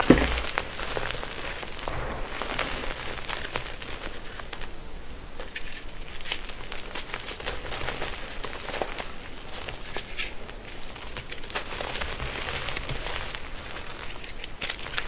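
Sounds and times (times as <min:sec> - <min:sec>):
soft powdery hiss: 0:00.0 - 0:15.0
chalk crunching and crumbling: 0:05.4 - 0:15.0.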